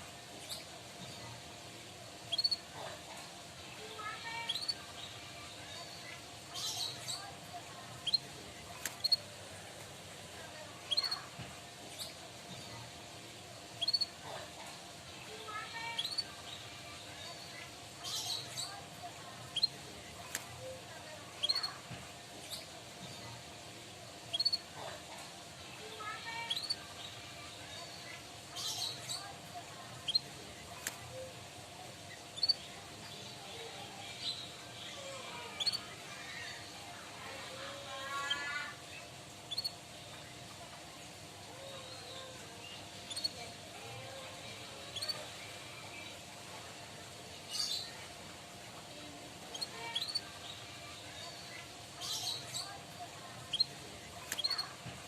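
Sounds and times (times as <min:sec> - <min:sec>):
canary chirping and singing: 0:02.2 - 0:02.9, 0:03.6 - 0:09.6, 0:10.5 - 0:12.8, 0:13.7 - 0:23.4, 0:24.2 - 0:25.1, 0:25.8 - 0:31.4, 0:32.1 - 0:40.6, 0:41.6 - 0:46.2, 0:48.9 - 0:55.0
sharp click: 0:08.8 - 0:09.2, 0:30.8 - 0:31.0, 0:54.3 - 0:54.6.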